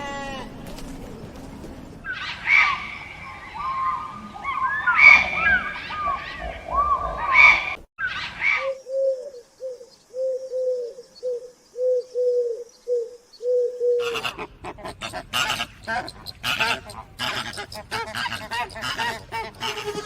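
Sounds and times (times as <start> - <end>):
birds chirping: 0.0 - 20.0
pigeon cooing: 8.6 - 20.0.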